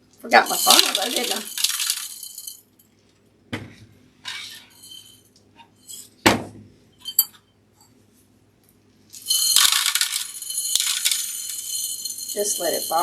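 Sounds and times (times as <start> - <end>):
glass jar clinking: 0.4 - 2.6, 4.7 - 5.2, 7.0 - 7.4, 9.2 - 13.0
seed pouring into glass jar: 0.4 - 2.6, 9.1 - 13.0.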